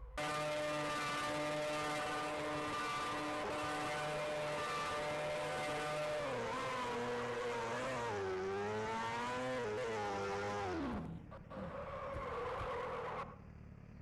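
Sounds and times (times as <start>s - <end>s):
sportbike engine revving: 0.2s - 11.3s.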